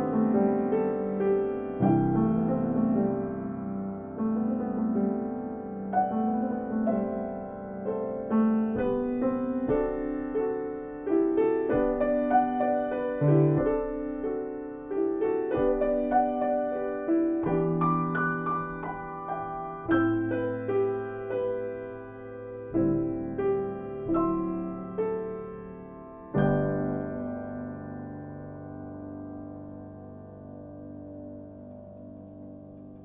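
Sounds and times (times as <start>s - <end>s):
slow piano music: 0.0s - 33.0s.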